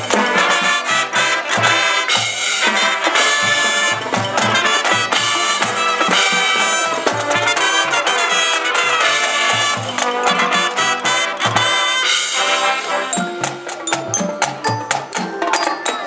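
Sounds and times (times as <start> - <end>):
drum beat: 0.0 - 12.0, 13.1 - 16.0
brass melody: 0.0 - 16.0
low repeated notes: 13.1 - 16.0.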